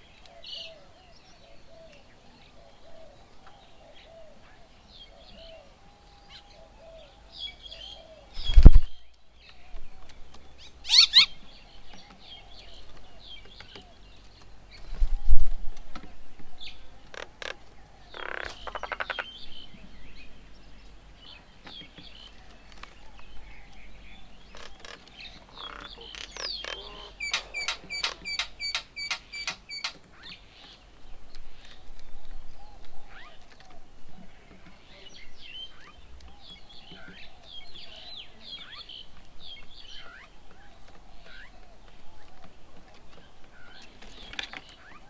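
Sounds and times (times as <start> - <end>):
birds chirping and calling: 0.0 - 45.0
harsh buzzy bird call: 25.6 - 30.0.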